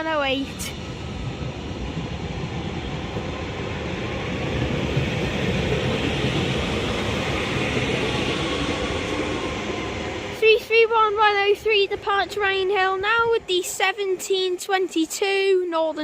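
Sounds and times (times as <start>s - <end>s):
train running hiss: 0.0s - 16.0s
train wheels rumbling on rail: 0.0s - 16.0s.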